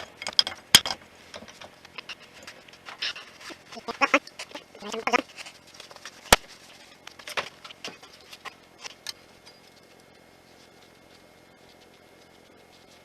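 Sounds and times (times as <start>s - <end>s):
metal tools clanking: 0.0s - 5.2s.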